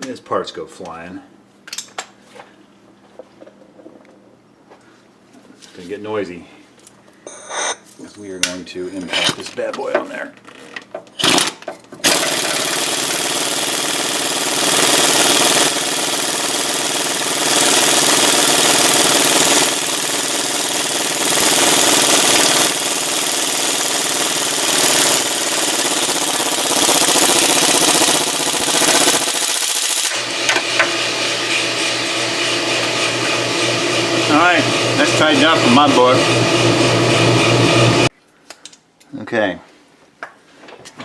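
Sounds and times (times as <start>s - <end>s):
impact wrench hammering: 11.2s - 31.0s.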